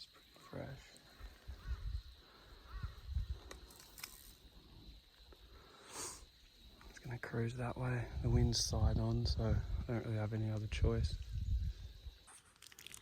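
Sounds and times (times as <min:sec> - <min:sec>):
wind on microphone: 0:01.4 - 0:03.5, 0:08.0 - 0:10.0, 0:10.6 - 0:12.2
short hiss: 0:05.6 - 0:06.3.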